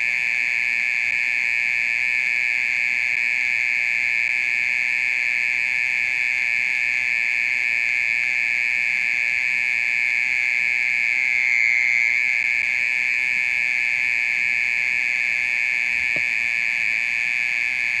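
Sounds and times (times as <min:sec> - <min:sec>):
mole cricket trilling: 0:09.1 - 0:18.0.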